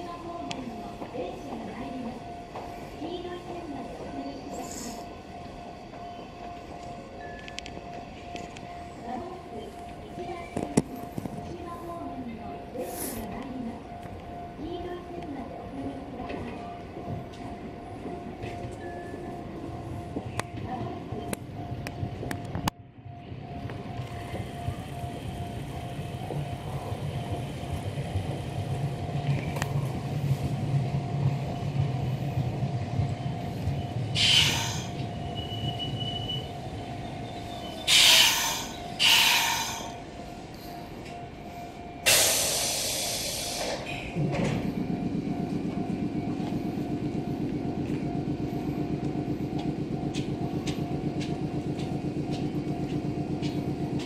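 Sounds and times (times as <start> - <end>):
pulsing hum from train: 0.0 - 54.0
train wheels rumbling: 23.3 - 54.0.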